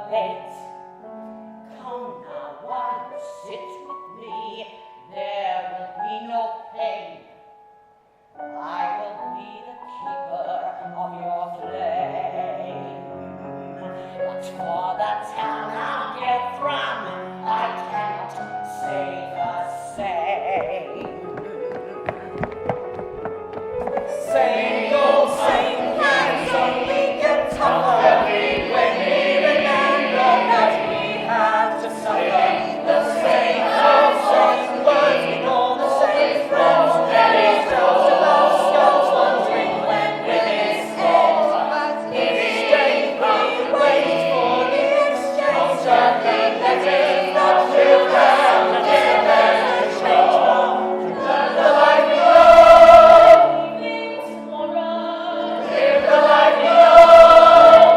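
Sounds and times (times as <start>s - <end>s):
choir singing wordless lines: 14.4s - 21.1s, 24.0s - 57.9s.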